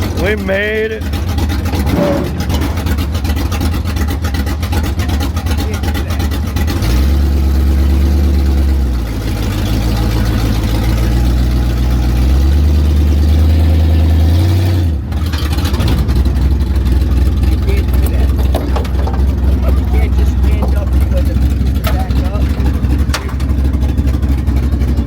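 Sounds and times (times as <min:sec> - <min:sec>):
monster truck engine revving: 0:00.0 - 0:25.0.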